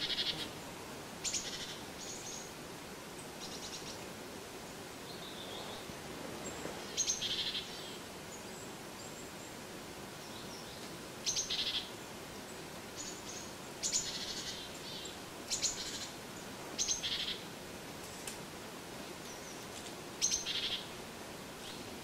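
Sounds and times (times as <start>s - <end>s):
songbird calling with buzzy trill: 0.0s - 0.6s, 1.2s - 2.5s, 10.2s - 11.9s, 13.0s - 17.4s, 19.2s - 20.9s.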